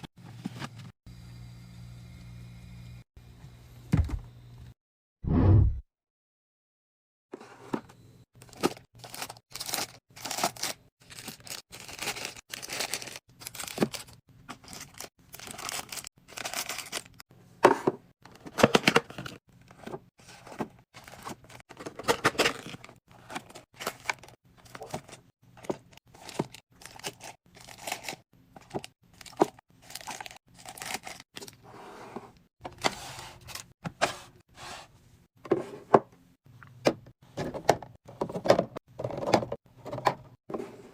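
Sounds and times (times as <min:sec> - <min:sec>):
food packaging crinkling: 0:08.4 - 0:17.2, 0:18.4 - 0:31.6
items set down knocking: 0:17.6 - 0:19.0.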